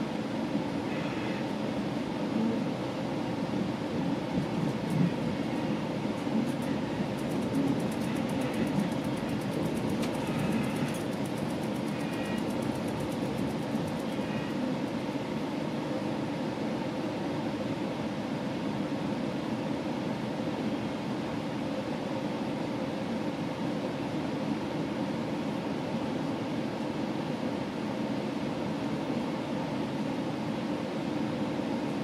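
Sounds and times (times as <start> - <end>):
train wheels rumbling on rails: 3.6 - 15.5.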